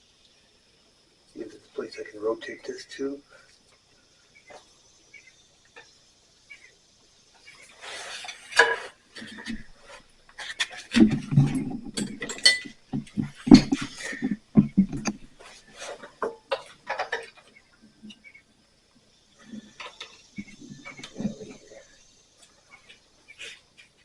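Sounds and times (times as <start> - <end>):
crickets chirring: 0.0 - 24.0
hand tools clicking and knocking: 10.4 - 15.3, 15.9 - 17.5.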